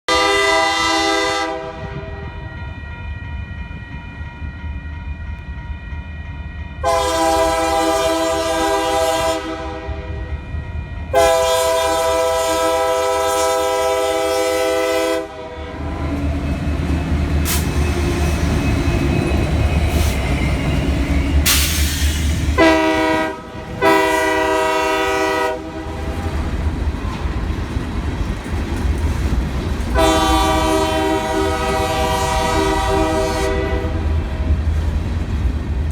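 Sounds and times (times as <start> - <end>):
train air horn: 0.1 - 2.8, 6.8 - 16.3, 21.4 - 26.4, 29.9 - 34.5
train engine and wheel rumble: 0.1 - 35.9
wheels clacking on rails: 1.8 - 35.9.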